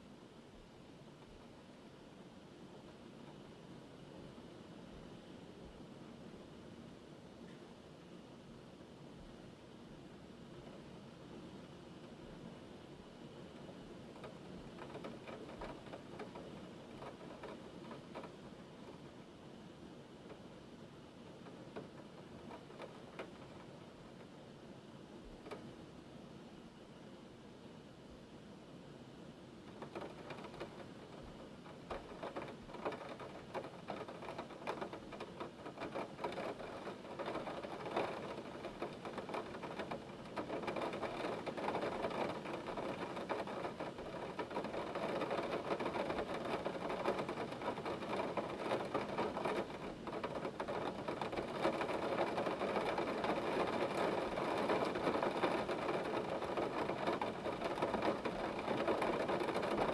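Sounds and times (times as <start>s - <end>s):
hailstones rattling: 29.7s - 59.9s.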